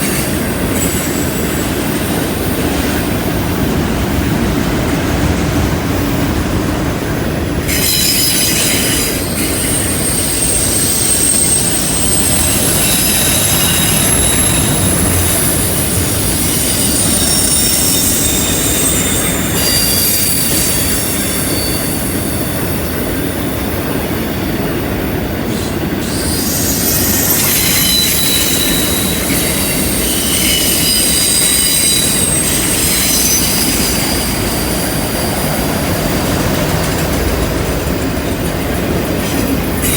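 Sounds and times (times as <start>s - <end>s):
train wheels rumbling on rail: 0.0s - 39.9s
flange squeals: 7.7s - 22.7s, 26.0s - 36.8s.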